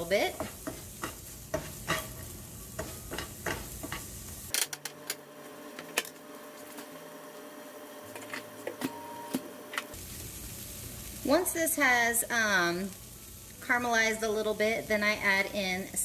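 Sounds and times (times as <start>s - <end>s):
onions sizzling in a frying pan: 0.0s - 4.5s, 9.9s - 16.0s
spatula scraping a pan: 0.4s - 4.2s.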